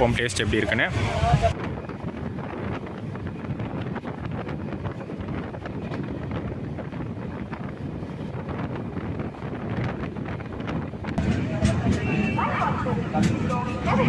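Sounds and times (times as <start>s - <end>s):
train rumbling: 0.0s - 14.0s
wind buffeting microphone: 0.0s - 14.0s.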